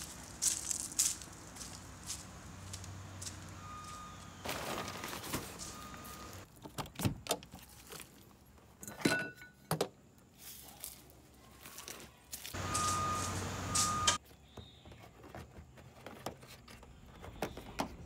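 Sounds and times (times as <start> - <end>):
faint reversing beeps: 3.2 - 6.4, 12.6 - 14.2.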